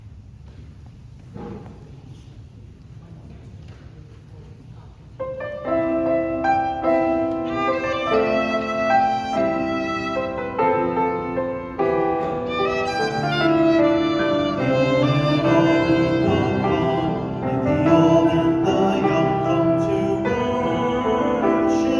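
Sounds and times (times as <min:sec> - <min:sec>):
low room noise: 0:00.0 - 0:21.9
instrumental ensemble playing: 0:06.5 - 0:17.6.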